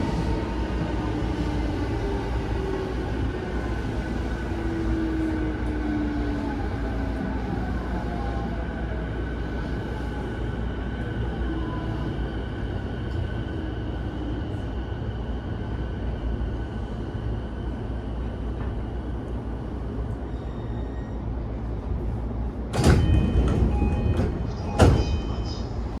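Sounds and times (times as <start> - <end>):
train low rumble: 0.0 - 26.0
train doors opening rush: 17.7 - 26.0.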